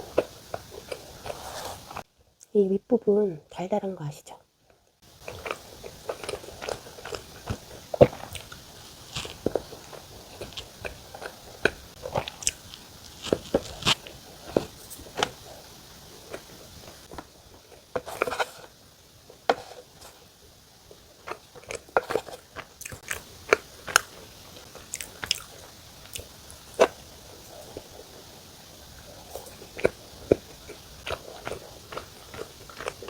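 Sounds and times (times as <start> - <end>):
person chewing: 0.0 - 2.0, 5.0 - 20.2, 20.9 - 33.0
biting into crumbly crust: 5.1 - 20.3, 20.9 - 28.2, 28.9 - 33.0.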